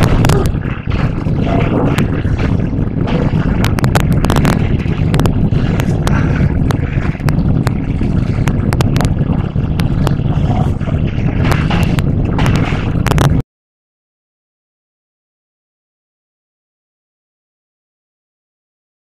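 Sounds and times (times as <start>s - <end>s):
sharp clicks and rattles: 0.0s - 13.4s
train interior rumble: 0.0s - 13.4s.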